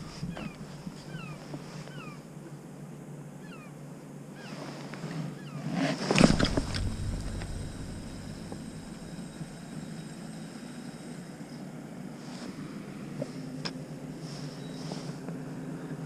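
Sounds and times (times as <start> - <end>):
bird chirping: 0.3 - 2.2
rustle and thump: 5.9 - 9.7.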